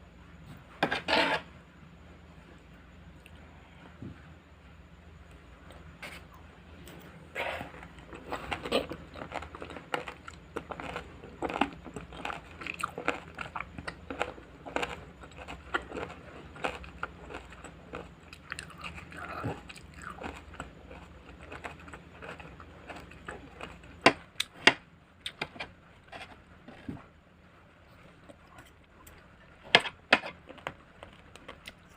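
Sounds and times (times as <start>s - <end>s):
crunching raw vegetables: 6.8s - 27.1s, 27.8s - 31.9s.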